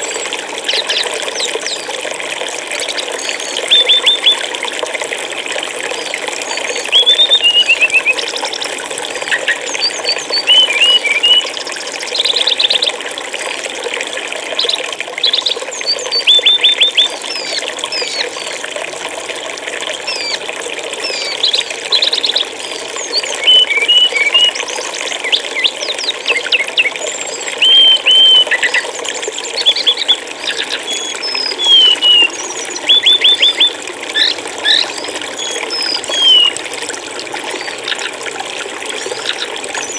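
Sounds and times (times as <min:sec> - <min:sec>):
flowing water: 0:00.0 - 0:39.9
flycatcher whistled calls: 0:03.3 - 0:04.4, 0:06.7 - 0:08.3, 0:09.4 - 0:11.5, 0:15.2 - 0:18.2, 0:23.1 - 0:24.6, 0:25.2 - 0:28.9, 0:29.5 - 0:36.6.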